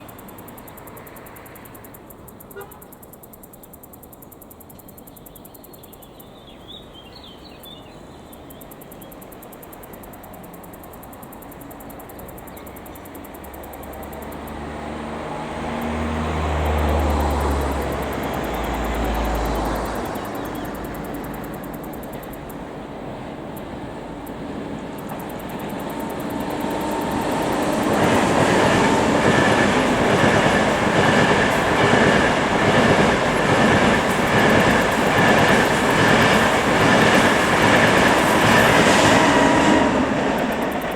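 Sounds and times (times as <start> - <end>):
high-speed train passing: 0.0 - 40.9.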